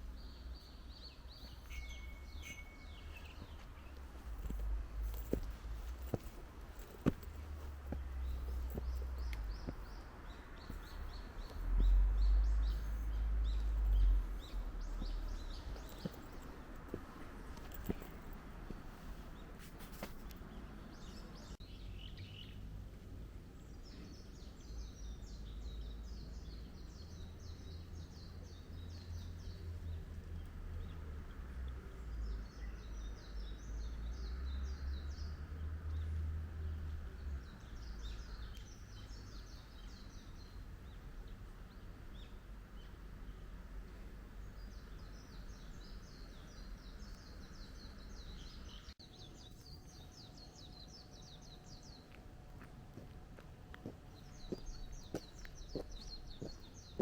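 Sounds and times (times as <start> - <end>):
low outdoor rumble: 0.0 - 25.3
songbird chirping: 0.0 - 57.0.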